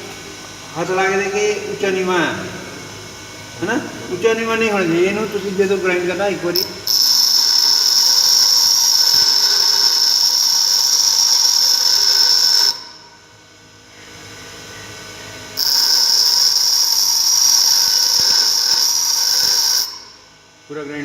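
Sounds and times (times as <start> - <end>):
faint grinder hum: 0.0 - 21.0
bench grinder grinding steel: 4.9 - 13.0, 15.6 - 20.3.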